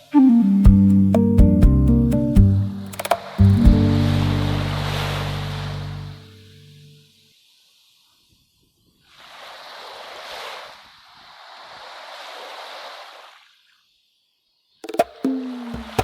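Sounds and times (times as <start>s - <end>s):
plucked-string music: 0.2s - 6.3s
ocean waves washing in: 2.6s - 14.0s, 15.2s - 16.0s.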